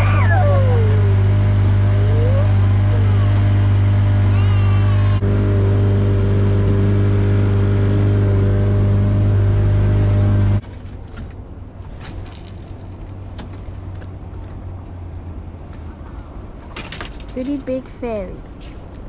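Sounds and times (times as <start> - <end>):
boat motor running: 0.0 - 10.6.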